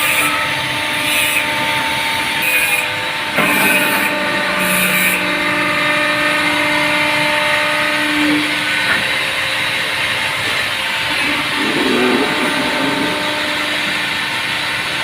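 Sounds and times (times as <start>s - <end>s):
press machine motor hum: 3.1s - 8.8s, 10.5s - 15.0s.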